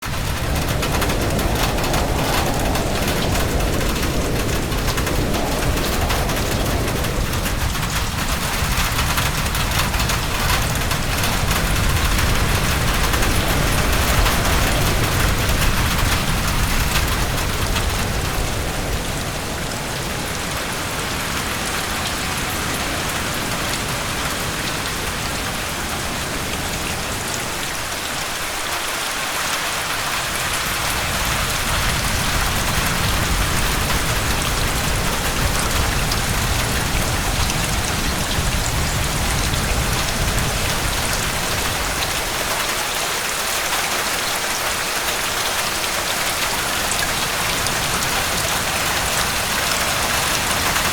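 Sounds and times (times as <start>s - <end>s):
low rumble: 0.0s - 20.5s
heavy rain hiss: 0.0s - 50.9s.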